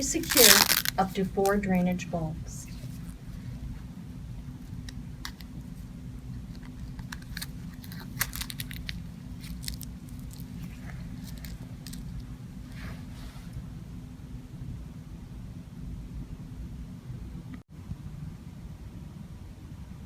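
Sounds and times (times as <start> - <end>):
plastic crackles and clicks: 0.0 - 1.6, 6.5 - 12.2
steady low hum: 0.0 - 20.0.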